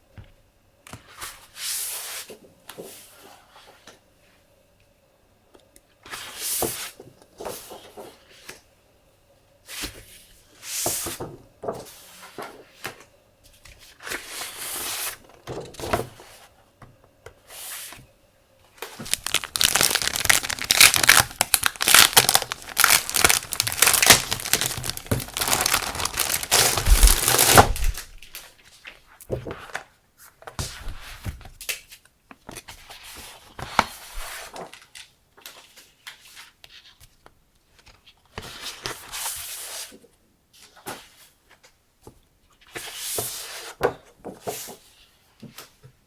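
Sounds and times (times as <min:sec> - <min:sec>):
paper and packaging rustling: 0:18.8 - 0:29.0.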